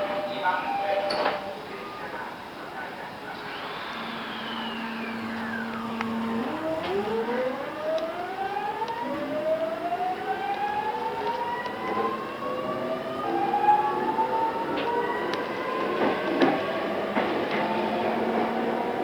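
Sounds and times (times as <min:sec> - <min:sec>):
low inverter hum: 0:00.0 - 0:11.8
electric train motor whine: 0:03.4 - 0:19.0.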